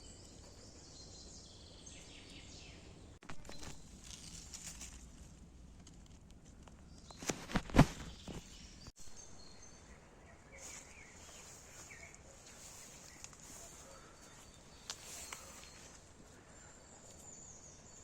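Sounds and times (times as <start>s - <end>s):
faint bird chirps: 7.0s - 18.0s.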